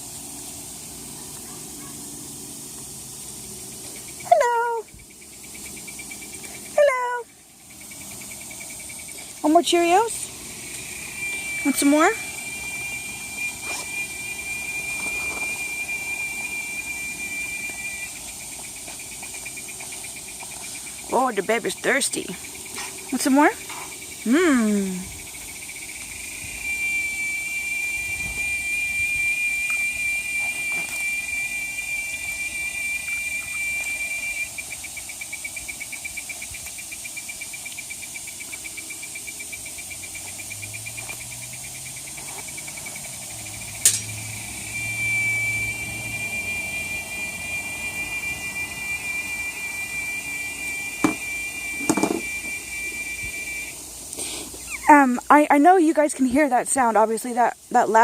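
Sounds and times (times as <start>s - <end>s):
high-pitched alarm-like whine: 0.0s - 58.0s
sharp click: 43.8s - 44.1s.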